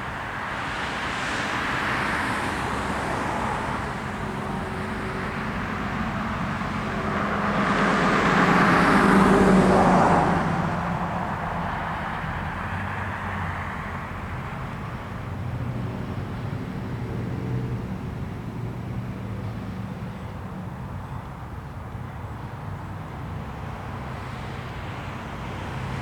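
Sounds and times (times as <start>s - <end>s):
vehicles passing: 0.0s - 26.0s.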